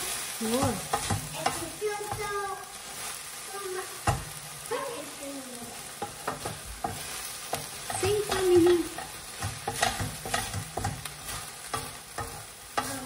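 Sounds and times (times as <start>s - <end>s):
chicken frying in a pan: 0.0s - 13.0s
utensil knocking against pan: 0.6s - 2.3s, 4.0s - 4.4s, 6.0s - 13.0s.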